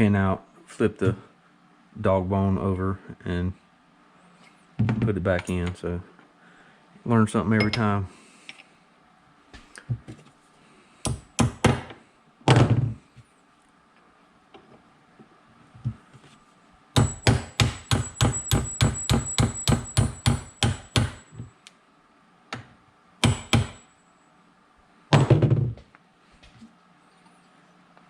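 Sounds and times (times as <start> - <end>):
hammer striking metal: 17.0 - 21.3, 23.2 - 23.9.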